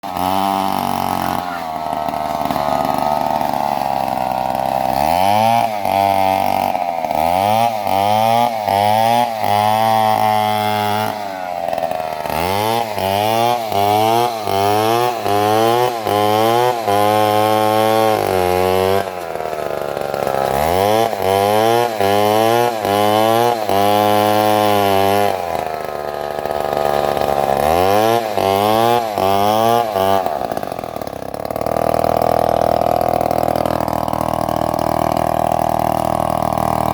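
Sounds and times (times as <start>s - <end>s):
chainsaw revving: 0.0s - 36.9s.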